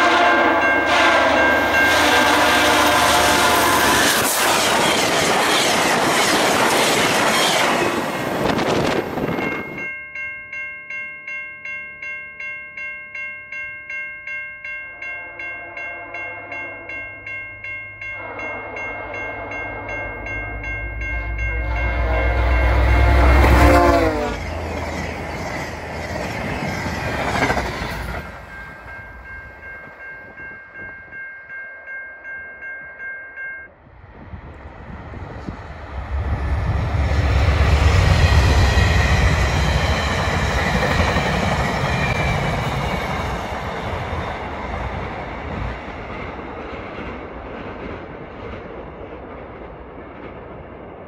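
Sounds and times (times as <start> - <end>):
train horn: 0.0 - 4.4, 15.2 - 17.0, 18.1 - 24.5
train rumbling past: 0.0 - 10.0, 15.0 - 31.6, 33.8 - 51.0
level-crossing warning bell: 0.0 - 33.8, 37.3 - 46.6.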